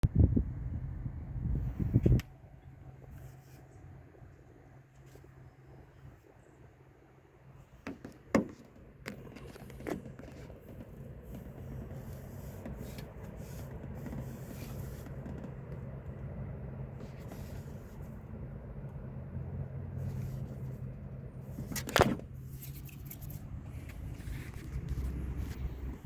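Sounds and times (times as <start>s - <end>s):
car engine idling: 2.2s - 26.0s
sharp engine clicks and knocks: 7.7s - 16.6s.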